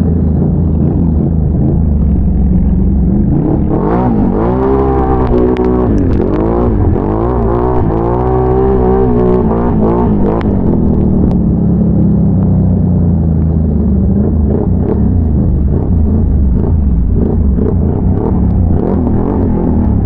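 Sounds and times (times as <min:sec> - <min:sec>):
atv engine running at low revs: 0:00.0 - 0:20.0.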